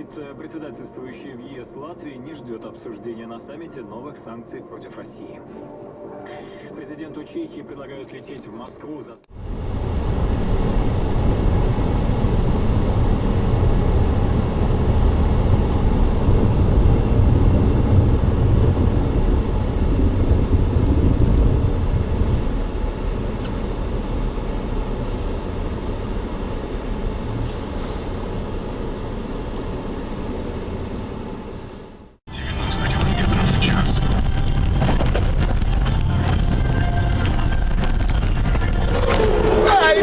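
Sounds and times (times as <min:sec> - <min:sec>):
vehicle road and engine rumble: 0:09.3 - 0:40.0.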